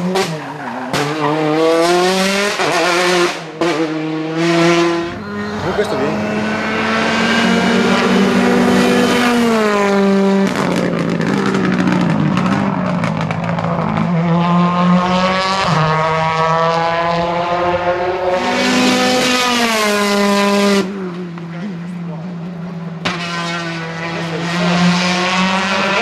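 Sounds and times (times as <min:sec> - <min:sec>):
rally car engine revving: 0:00.0 - 0:26.0
exhaust crackles: 0:00.2 - 0:16.2.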